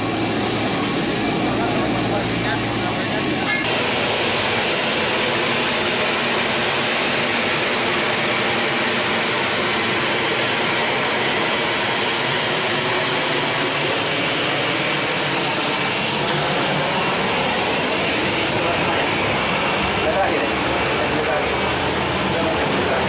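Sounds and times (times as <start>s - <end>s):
faint high whine: 0.0s - 3.8s
jet engine rush: 0.0s - 23.0s.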